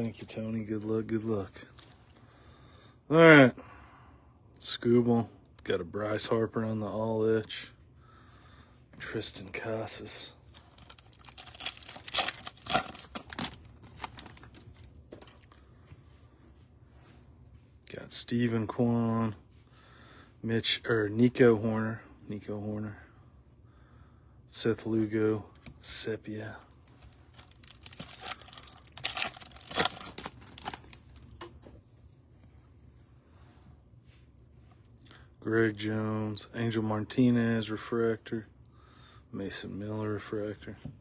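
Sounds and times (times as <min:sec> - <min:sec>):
foil wrapper crinkling and tearing: 0:10.4 - 0:15.5, 0:27.2 - 0:31.5.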